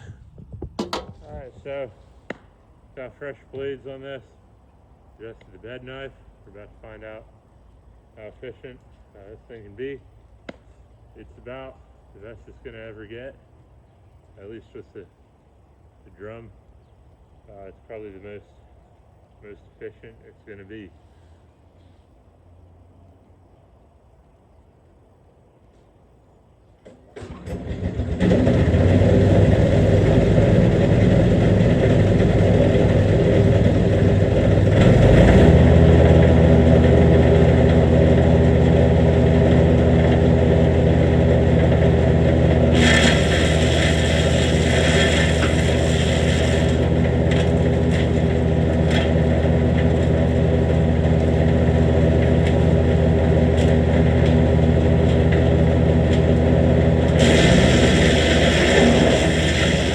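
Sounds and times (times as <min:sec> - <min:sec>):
wood chipper engine running: 0:00.8 - 0:02.4, 0:27.0 - 0:59.9.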